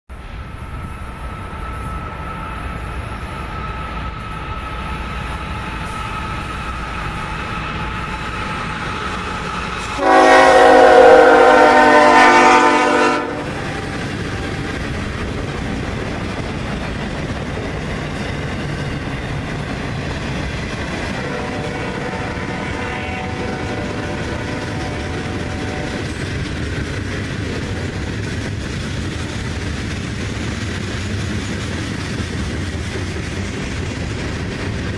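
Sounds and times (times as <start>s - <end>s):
diesel locomotive rumble: 0.1s - 34.9s
train air horn blast: 9.8s - 13.8s, 21.2s - 26.1s.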